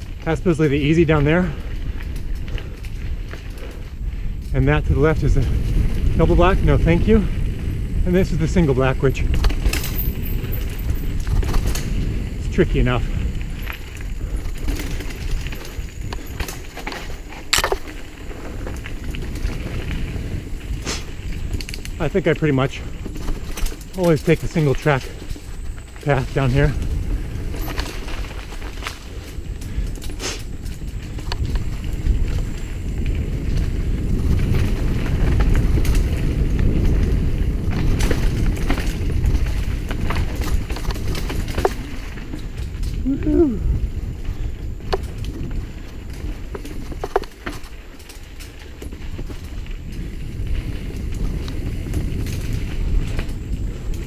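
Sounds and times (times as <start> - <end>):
bike clicks and rattles: 0.0 - 54.0
tyres rumbling on dirt: 0.0 - 54.0
wind: 0.0 - 54.0.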